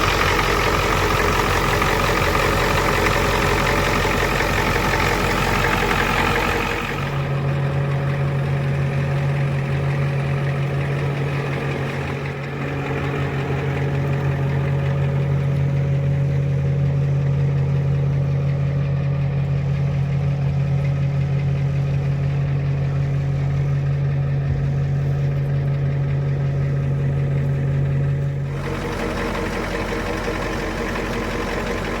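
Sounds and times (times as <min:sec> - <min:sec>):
truck engine idling: 0:00.0 - 0:32.0.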